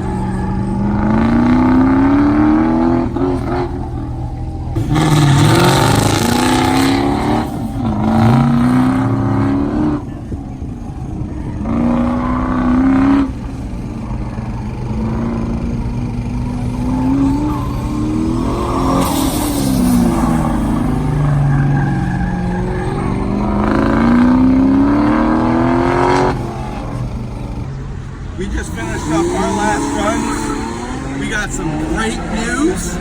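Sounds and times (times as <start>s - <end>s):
car engine accelerating: 0.0s - 33.0s
loud rushing noise: 13.6s - 24.5s.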